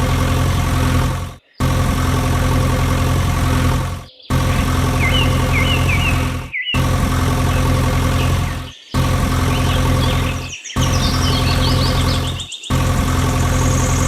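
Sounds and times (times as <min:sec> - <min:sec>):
motor humming: 0:00.0 - 0:14.0
bird chirping: 0:04.0 - 0:14.0.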